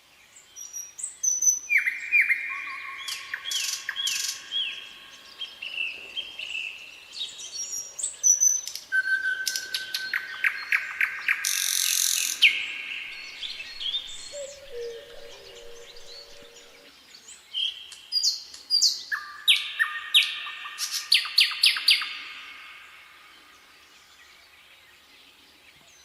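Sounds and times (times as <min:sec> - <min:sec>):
songbirds singing: 0:00.2 - 0:26.0
fast bird trill: 0:12.2 - 0:16.9
harsh buzzy bird call: 0:13.0 - 0:16.9
low held note: 0:13.1 - 0:16.9.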